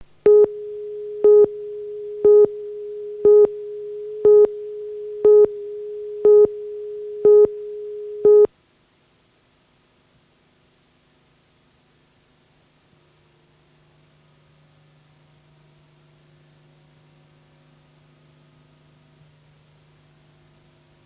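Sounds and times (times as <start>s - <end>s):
steady mid-pitched electronic tone: 0.2s - 8.5s
electronic beeps: 0.3s - 8.5s.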